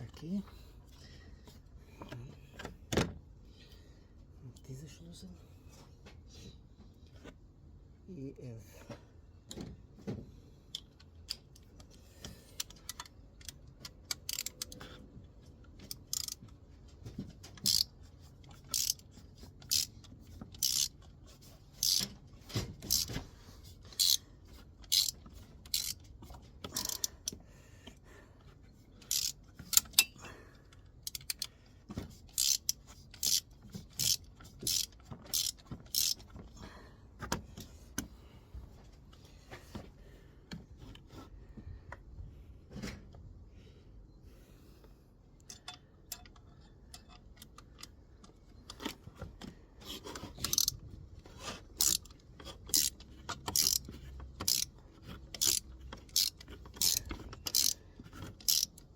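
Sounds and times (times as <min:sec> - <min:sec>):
ratchet wrench clicking: 0:12.6 - 0:14.9, 0:15.8 - 0:16.4, 0:17.6 - 0:17.9, 0:18.5 - 0:22.2, 0:22.8 - 0:23.2, 0:23.9 - 0:24.2, 0:24.8 - 0:27.4, 0:29.0 - 0:30.2, 0:31.0 - 0:31.5, 0:32.3 - 0:36.3, 0:50.4 - 0:50.8, 0:51.8 - 0:58.8.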